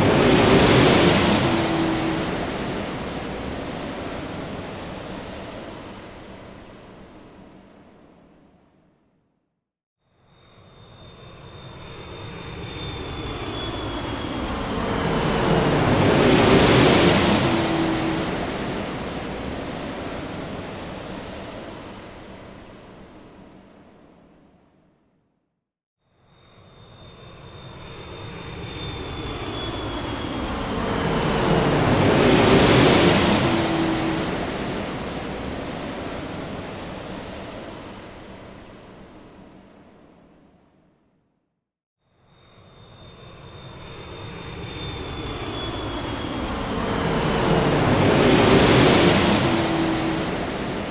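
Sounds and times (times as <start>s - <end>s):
high engine whine: 0.0s - 4.2s, 43.3s - 50.9s
airplane flying past: 0.0s - 7.5s, 10.4s - 23.5s, 26.4s - 39.8s, 42.4s - 50.9s
airliner engine rush: 0.0s - 8.3s, 10.5s - 24.2s, 26.5s - 40.6s, 42.5s - 50.9s.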